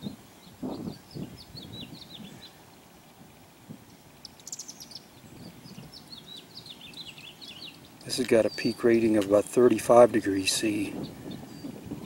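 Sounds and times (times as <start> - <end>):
faint outdoor background noise: 0.0 - 12.0
small birds chirping: 0.0 - 12.0
buzzy bird trill: 3.8 - 9.2.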